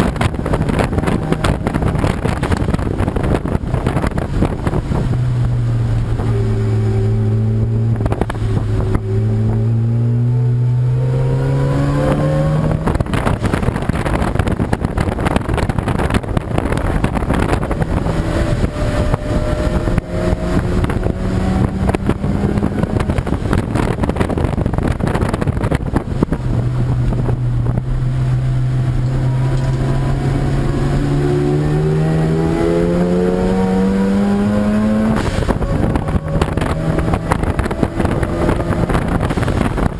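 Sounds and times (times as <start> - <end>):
race car engine accelerating: 0.0 - 39.9
loud rushing noise: 31.4 - 39.9.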